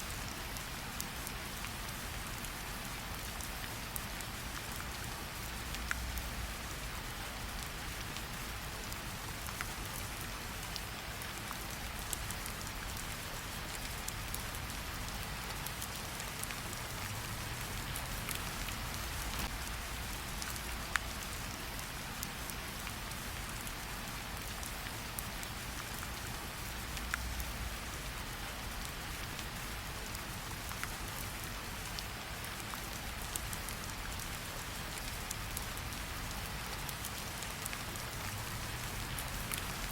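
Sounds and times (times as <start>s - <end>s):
rain falling: 0.0s - 39.9s
campfire crackling: 15.7s - 20.0s.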